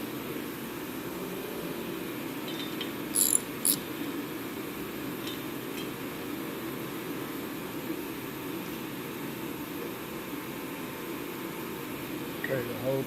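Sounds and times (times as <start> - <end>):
metal tools clinking on metal: 3.2 - 3.8.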